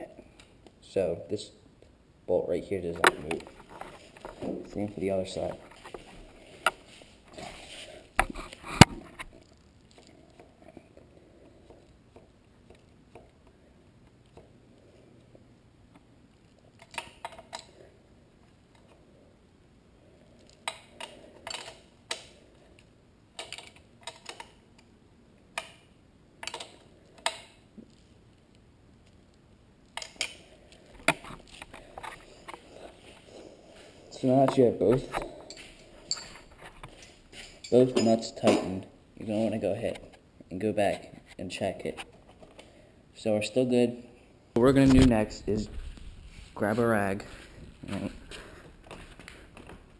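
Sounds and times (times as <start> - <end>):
wrenches clinking on metal bolts: 35.5 - 36.5, 37.4 - 38.8.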